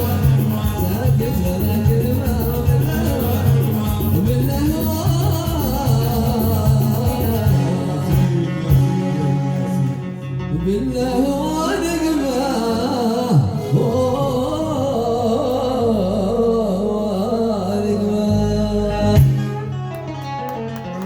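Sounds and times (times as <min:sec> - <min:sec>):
steady beat: 0:00.0 - 0:09.1
person singing: 0:00.0 - 0:20.2.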